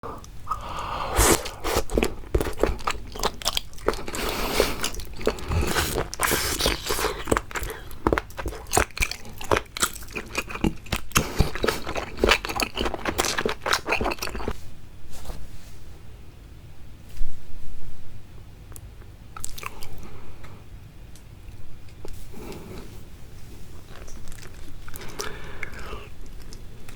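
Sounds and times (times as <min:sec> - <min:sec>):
wet bites and chewing: 0:00.5 - 0:14.5.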